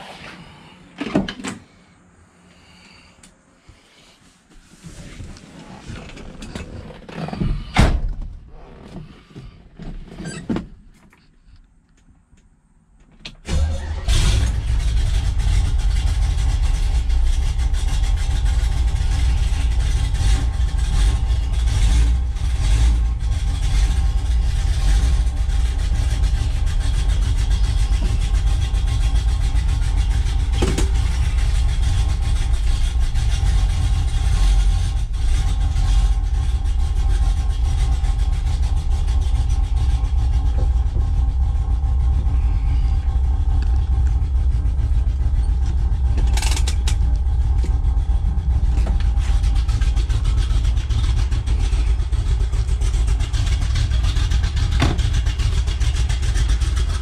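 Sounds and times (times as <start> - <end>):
car engine idling: 12.5 - 57.0
car engine starting: 12.7 - 57.0.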